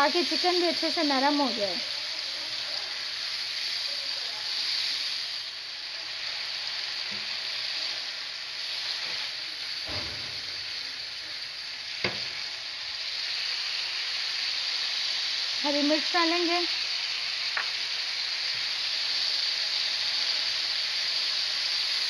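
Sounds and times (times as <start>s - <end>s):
chicken sizzling in a pan: 0.0s - 22.0s.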